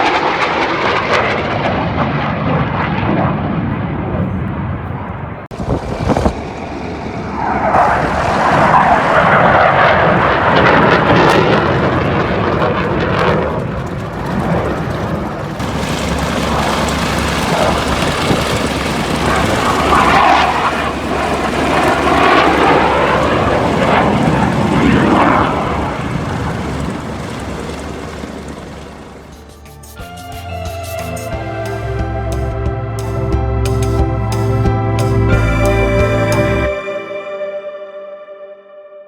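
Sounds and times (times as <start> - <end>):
airplane flying past: 0.0 - 29.9.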